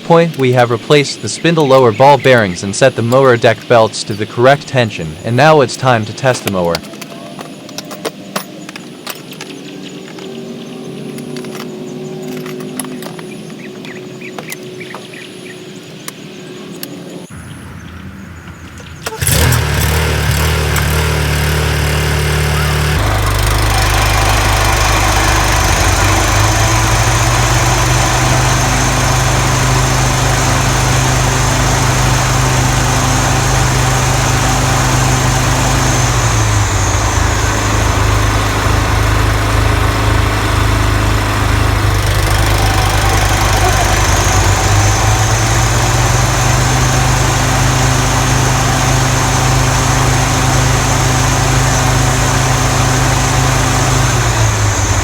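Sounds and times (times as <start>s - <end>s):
lawn mower engine running: 0.0s - 8.8s, 18.8s - 55.0s
high whine: 17.3s - 55.0s.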